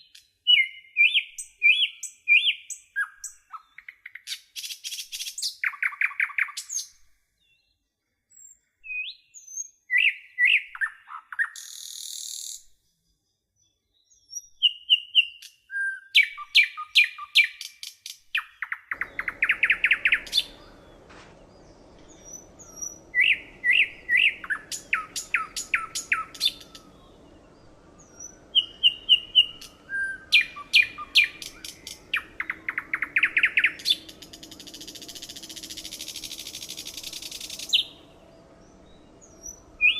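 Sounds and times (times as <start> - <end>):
songbird singing: 0.0 - 39.9
faint low hum: 18.9 - 39.9.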